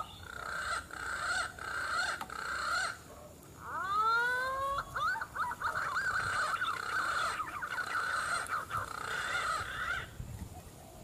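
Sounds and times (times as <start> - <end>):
bird whistled call warbling: 3.7 - 10.0.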